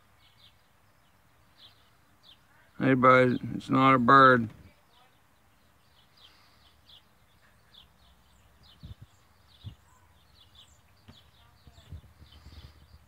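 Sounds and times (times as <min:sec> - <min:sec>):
faint high bird chirps: 0:04.7 - 0:13.0.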